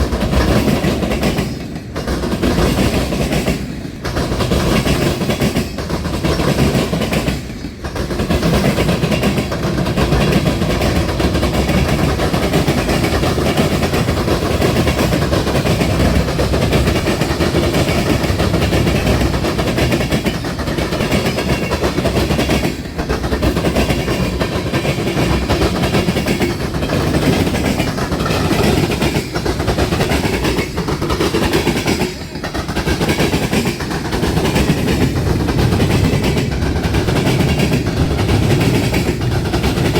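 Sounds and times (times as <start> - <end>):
train wheels clattering over rails: 0.0 - 39.9.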